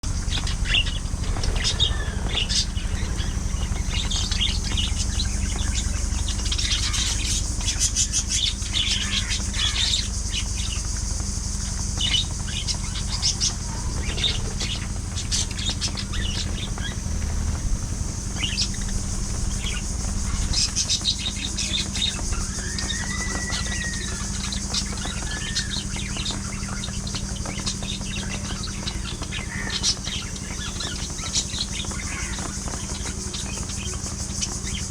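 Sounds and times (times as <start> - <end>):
steady low hum: 0.0 - 34.9
budgerigars chirping and chattering: 0.1 - 34.9
whistled bird call: 18.4 - 32.4.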